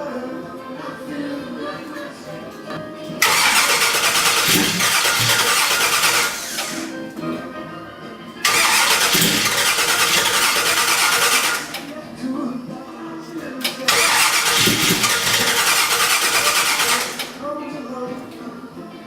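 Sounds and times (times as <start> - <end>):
car engine cranking on starter: 3.2 - 7.0, 8.4 - 11.9, 13.6 - 17.4.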